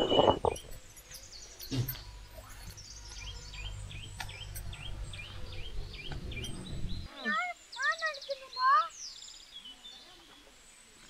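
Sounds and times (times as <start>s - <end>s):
small bird chirping: 0.0s - 10.5s
steady low rumble: 2.1s - 7.1s.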